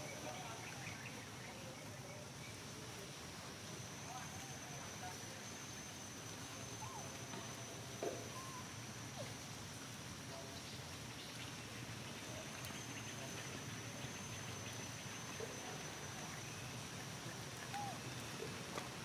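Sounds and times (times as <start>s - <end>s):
faint animal calls: 6.7s - 7.2s, 8.2s - 9.3s, 17.6s - 18.1s.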